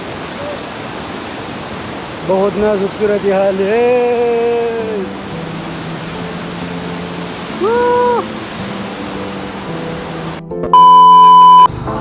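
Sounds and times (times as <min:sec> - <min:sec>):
rushing water: 0:00.0 - 0:12.0
steady electronic beep: 0:10.8 - 0:11.7.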